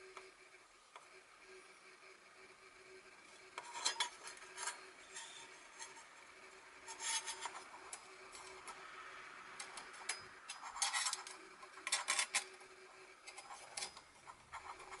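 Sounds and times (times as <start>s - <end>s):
metal plates clinking and scraping: 3.6s - 6.0s, 6.8s - 8.8s, 9.6s - 12.5s.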